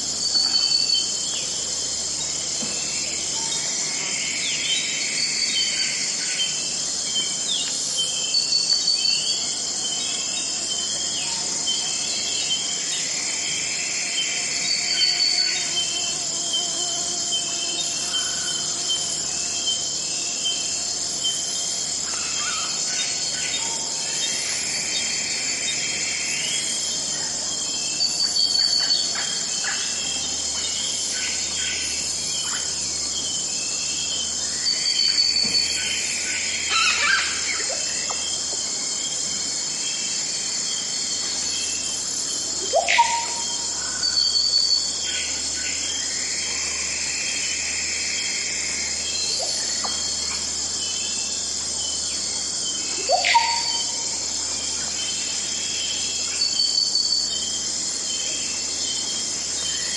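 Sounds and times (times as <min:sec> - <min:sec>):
insects chirping: 0:00.0 - 0:59.9
bird calls and chirps: 0:40.7 - 0:46.0, 0:49.1 - 0:59.9
rising bird whistle: 0:53.0 - 0:54.0.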